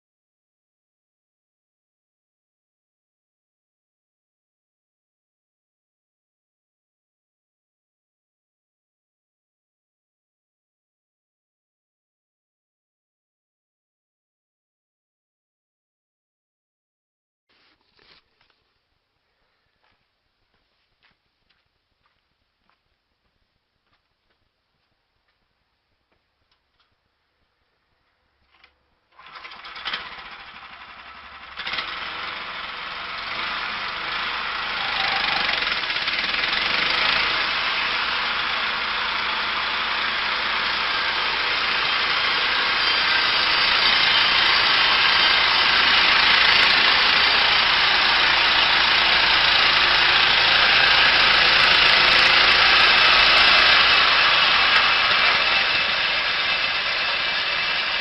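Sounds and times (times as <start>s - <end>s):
machine engine running: 29.2s - 58.0s.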